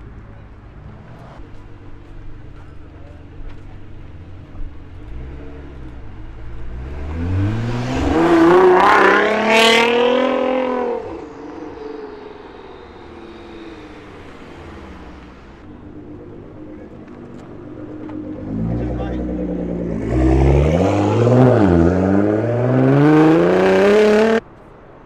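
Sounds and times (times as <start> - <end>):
sports car accelerating hard: 4.6 - 24.4.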